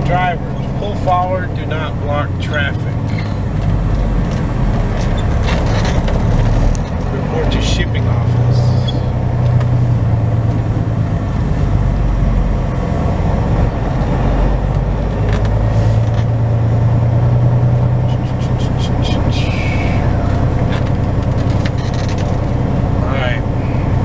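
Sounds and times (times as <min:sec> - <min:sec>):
diesel truck engine running: 0:00.0 - 0:24.0.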